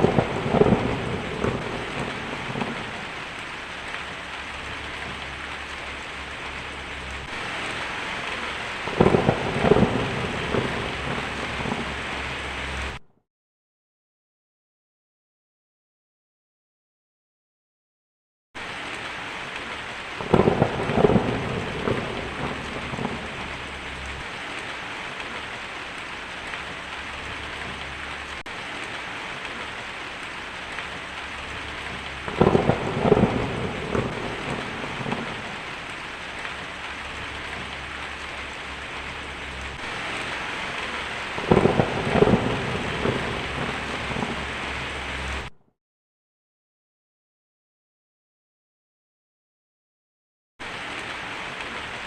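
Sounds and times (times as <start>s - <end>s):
steady rain: 0.0s - 13.0s, 18.6s - 45.6s, 50.6s - 52.0s
thunder cracks and rumbles: 0.0s - 13.0s, 20.2s - 25.5s, 30.6s - 45.5s.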